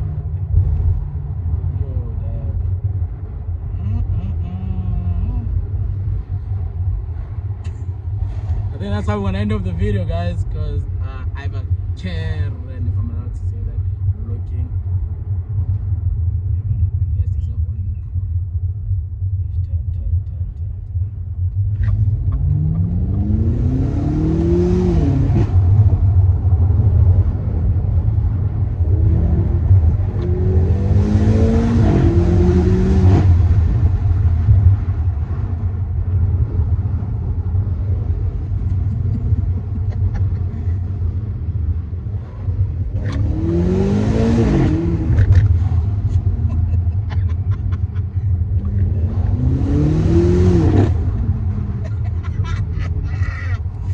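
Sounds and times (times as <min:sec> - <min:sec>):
road rumble: 0:00.0 - 0:53.9
car engine revving hard: 0:21.9 - 0:26.0, 0:28.8 - 0:33.9, 0:42.9 - 0:52.6.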